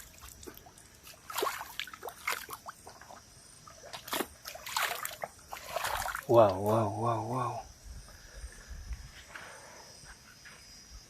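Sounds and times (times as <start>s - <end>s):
water splashing onto face: 0.0s - 6.7s.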